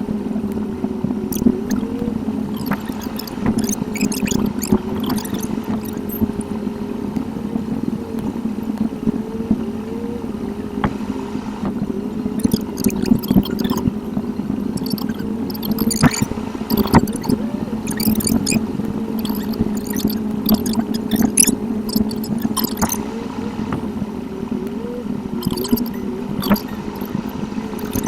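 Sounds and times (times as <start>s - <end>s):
engine and road noise hum: 0.0s - 28.0s
short chirps and clicks: 1.3s - 1.9s, 2.5s - 6.4s, 12.4s - 13.9s, 14.8s - 18.6s, 19.2s - 23.0s, 25.4s - 28.0s.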